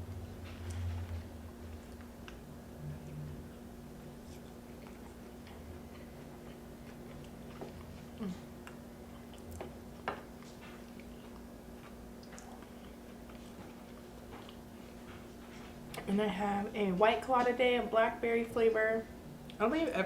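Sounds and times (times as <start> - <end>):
steady low hum: 0.0 - 20.0
mouth clicks and crunches eating: 4.2 - 16.1.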